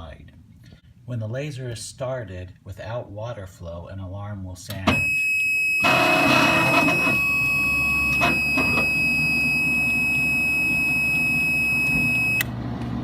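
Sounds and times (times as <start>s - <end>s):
high-pitched alarm buzzer: 4.9s - 12.4s.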